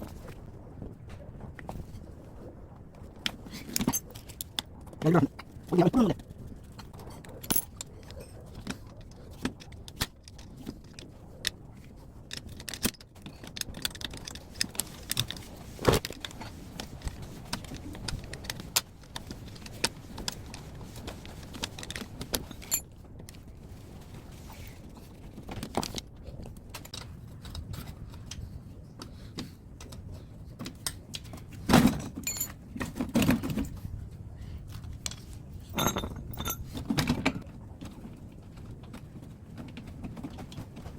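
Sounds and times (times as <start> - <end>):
metallic clinks and taps: 35.7 - 36.7.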